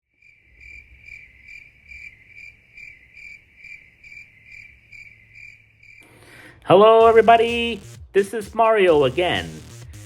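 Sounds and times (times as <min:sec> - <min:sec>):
insect chirping trill: 0:00.1 - 0:06.0.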